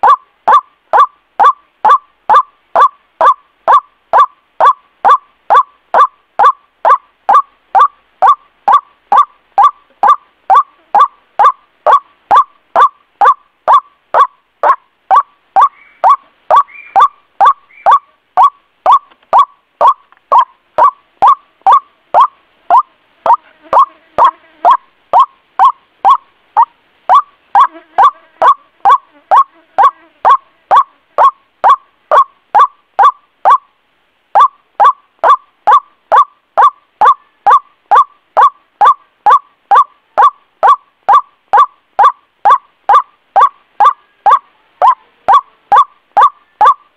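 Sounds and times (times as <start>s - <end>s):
faint higher chirps: 0.0s - 33.7s
waterhen call: 0.0s - 33.7s, 34.3s - 46.9s.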